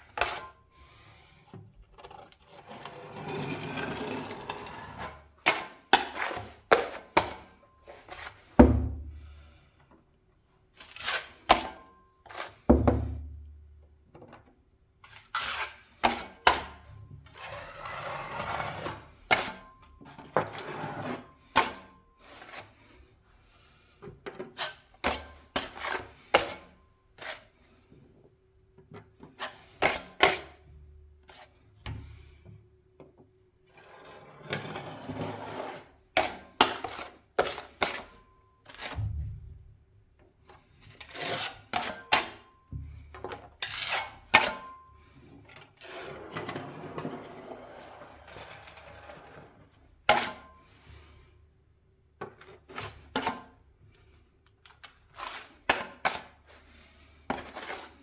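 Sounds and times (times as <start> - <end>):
tool scraping: 0.0 - 9.4, 10.8 - 12.7, 15.0 - 23.1, 24.3 - 27.8, 29.2 - 30.7, 33.7 - 39.6, 40.5 - 51.1, 54.7 - 58.0.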